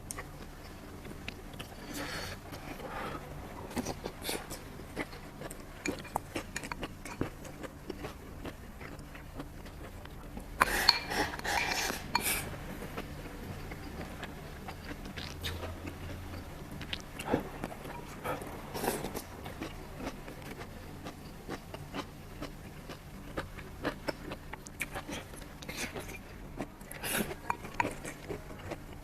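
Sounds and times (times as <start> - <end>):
utensils clattering against dishes: 10.6 - 12.4.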